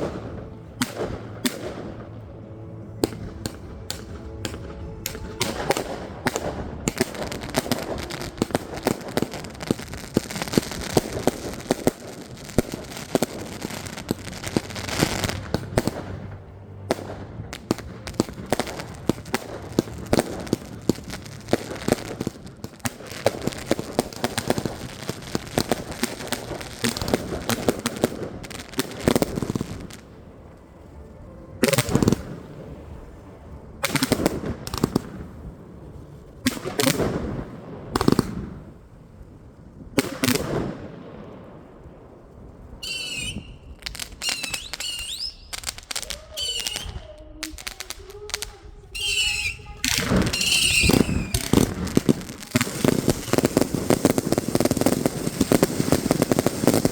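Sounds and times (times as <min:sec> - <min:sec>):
loud firework bursts: 0:00.0 - 0:30.1, 0:39.9 - 0:41.2, 0:42.7 - 0:56.9
firework shots crackling: 0:00.0 - 0:31.0, 0:31.6 - 0:33.2, 0:33.8 - 0:35.5, 0:36.2 - 0:56.9
whistling screeching fireworks: 0:03.0 - 0:30.1, 0:31.0 - 0:33.2, 0:42.7 - 0:56.9.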